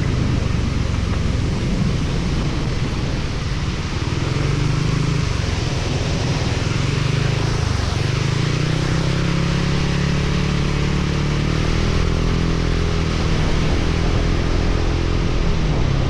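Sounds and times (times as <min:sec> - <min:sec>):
wind rushing: 0:00.0 - 0:09.6
motorcycle engine running: 0:00.0 - 0:16.0
wet road noise: 0:00.0 - 0:16.0.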